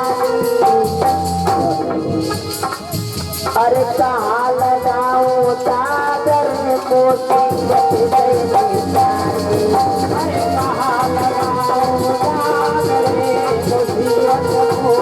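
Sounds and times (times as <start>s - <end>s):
wavering melody line: 0.0s - 3.0s
steady drum beats: 0.0s - 15.0s.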